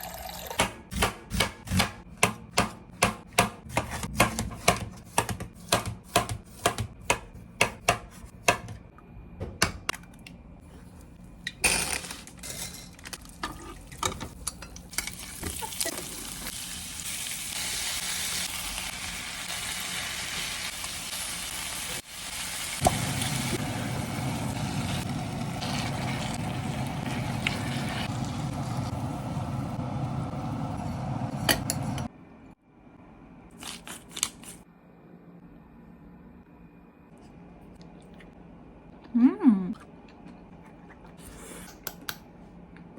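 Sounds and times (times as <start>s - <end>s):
knife chopping on cutting board: 0.6s - 8.8s
food sizzling in frying pan: 15.0s - 31.4s.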